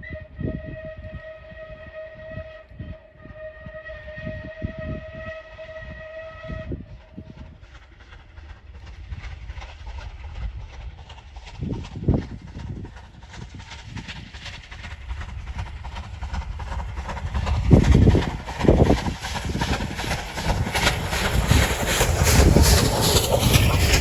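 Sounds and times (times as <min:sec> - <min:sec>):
steam locomotive whistle: 0:00.0 - 0:07.4
passing train rumbling: 0:00.0 - 0:24.0.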